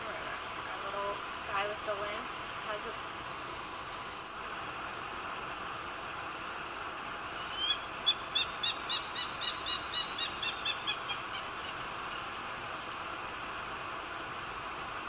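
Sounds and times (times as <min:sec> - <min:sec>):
bird calling: 0:07.3 - 0:12.5.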